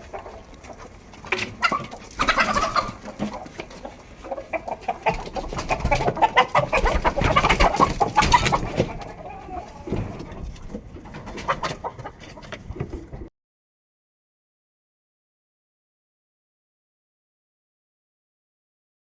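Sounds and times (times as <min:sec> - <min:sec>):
chickens clucking: 0:00.0 - 0:13.3.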